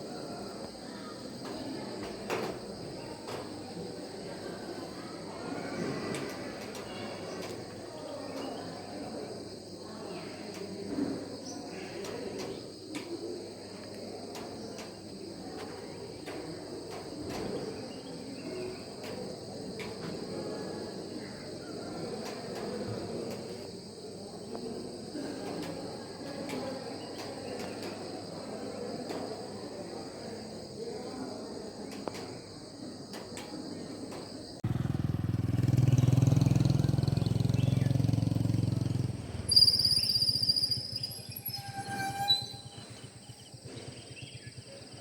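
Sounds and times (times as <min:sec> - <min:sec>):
low background murmur: 0:00.0 - 0:45.0
faint clicks: 0:06.1 - 0:08.7, 0:10.5 - 0:10.8, 0:11.8 - 0:17.7, 0:31.9 - 0:32.5, 0:33.1 - 0:34.6
insects buzzing trill: 0:37.3 - 0:45.0.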